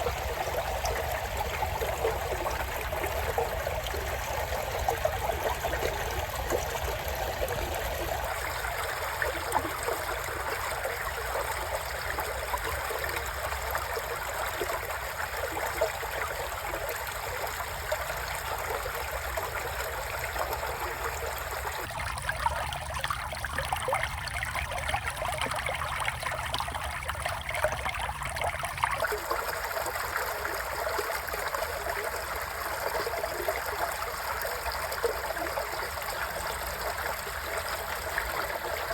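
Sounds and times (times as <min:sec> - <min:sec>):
creek water flowing: 0:00.0 - 0:38.9
small water splashes: 0:17.2 - 0:38.9.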